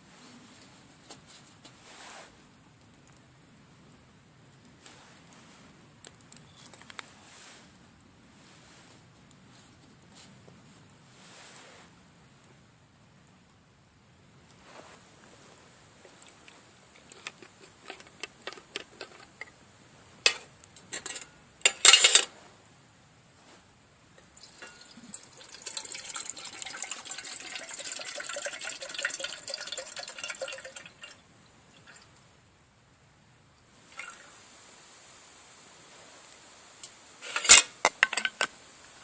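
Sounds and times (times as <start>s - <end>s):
water pouring into vessel: 24.4s - 31.2s.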